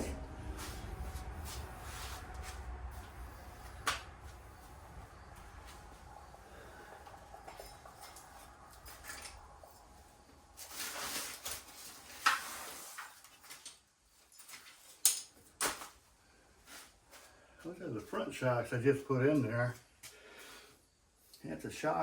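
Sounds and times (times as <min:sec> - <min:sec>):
scraping and rustling: 0:07.4 - 0:15.0.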